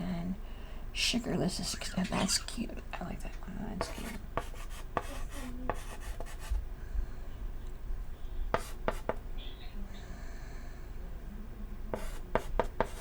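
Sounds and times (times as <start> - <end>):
chalk scratching on chalkboard: 3.8 - 6.6, 8.5 - 9.2, 11.9 - 13.0.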